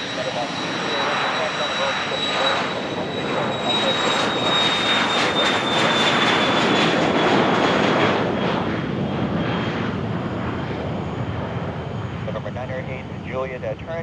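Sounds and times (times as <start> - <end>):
jet passing with whine: 0.0 - 14.0.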